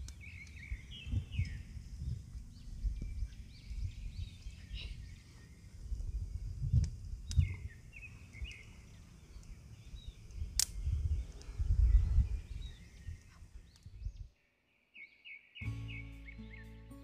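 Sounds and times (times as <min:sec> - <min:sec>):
small birds chirping: 0:00.0 - 0:17.0
sharp click: 0:10.3 - 0:10.8.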